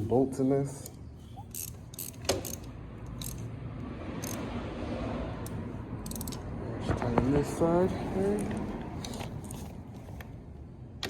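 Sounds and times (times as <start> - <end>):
metallic clicks: 0.8 - 3.5, 4.2 - 4.4, 5.4 - 6.5
tools and bolts clinking: 0.8 - 3.5, 4.2 - 4.5, 5.4 - 6.5, 8.5 - 9.8.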